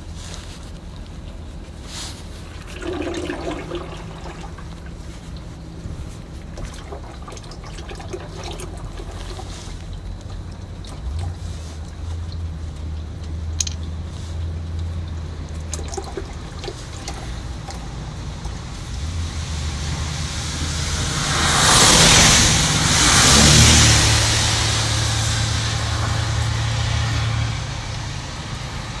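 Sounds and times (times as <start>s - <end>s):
diesel truck engine idling: 8.0s - 29.0s
loud hissing rush: 15.2s - 29.0s.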